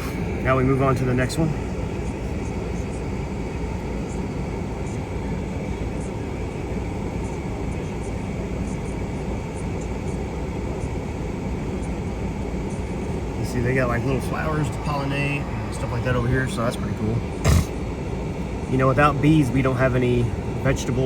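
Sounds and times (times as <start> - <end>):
truck engine idling: 0.0 - 0.6.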